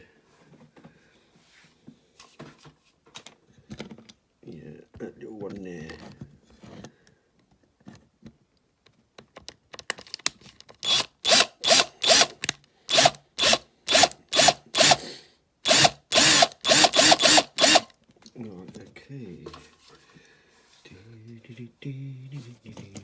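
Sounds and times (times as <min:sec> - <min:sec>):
electric drill bursts: 0:10.8 - 0:17.9.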